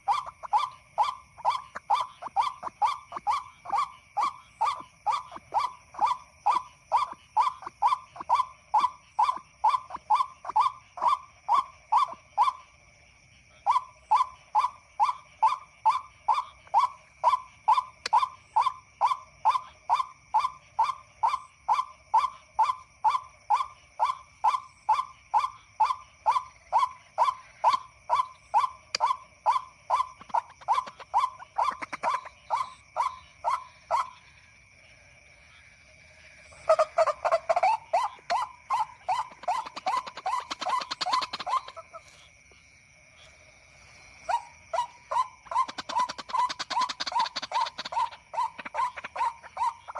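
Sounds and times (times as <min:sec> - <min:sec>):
waterhen call: 0:00.0 - 0:12.6, 0:25.4 - 0:34.2, 0:36.5 - 0:42.2, 0:44.3 - 0:49.9.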